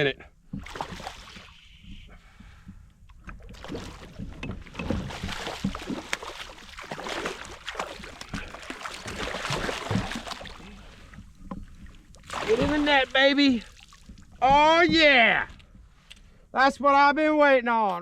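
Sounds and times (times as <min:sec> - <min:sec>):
water splashing: 0:00.6 - 0:01.6, 0:03.2 - 0:15.4
clicks and knocks against a kayak: 0:01.9 - 0:03.5, 0:04.1 - 0:06.2, 0:11.1 - 0:12.2.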